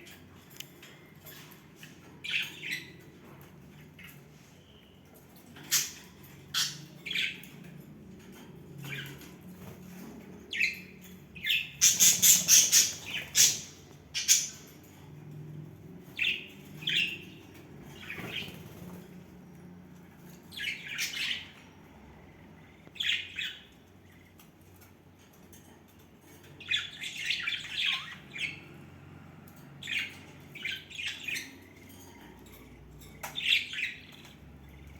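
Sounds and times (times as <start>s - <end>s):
budgerigars chirping and squawking: 1.3s - 4.3s, 5.4s - 15.0s, 16.1s - 19.0s, 20.2s - 21.7s, 22.8s - 24.9s, 26.4s - 28.8s, 29.6s - 34.9s.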